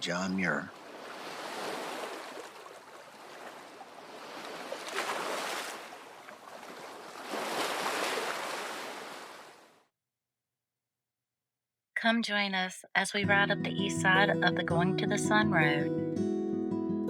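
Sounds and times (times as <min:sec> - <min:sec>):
waves washing onto shore: 0:00.8 - 0:09.6.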